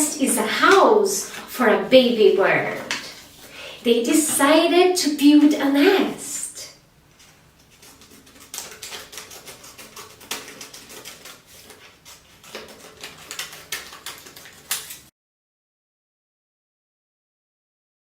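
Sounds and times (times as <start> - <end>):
paper crinkling and folding: 7.1 - 15.1.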